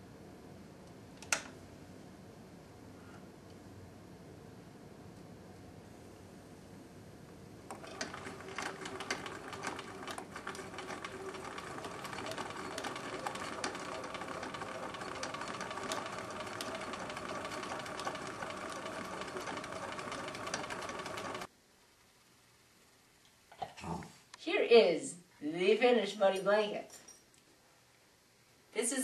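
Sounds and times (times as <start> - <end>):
sewing machine running: 7.7 - 21.5.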